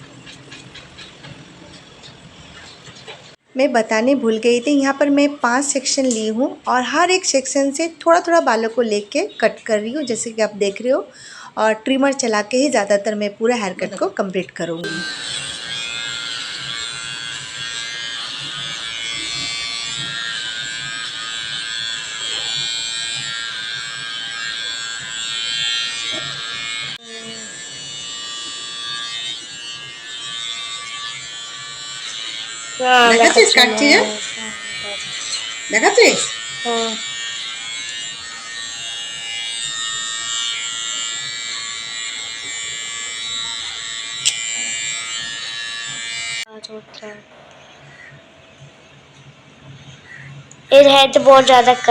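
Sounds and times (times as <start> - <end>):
electric hair trimmer buzzing: 14.8 - 46.5.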